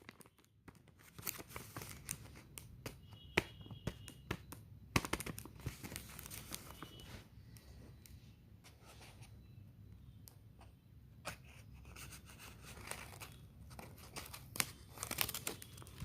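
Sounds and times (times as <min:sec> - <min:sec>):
packaging wrapper crinkling: 0:12.7 - 0:16.0.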